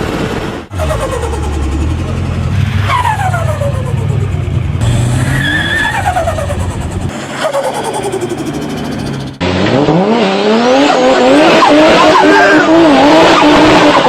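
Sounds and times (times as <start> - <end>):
turbocharged car engines running: 0.0 - 14.0
engine revving hard: 0.7 - 7.2, 7.8 - 14.0
turbo flutter: 5.8 - 9.4.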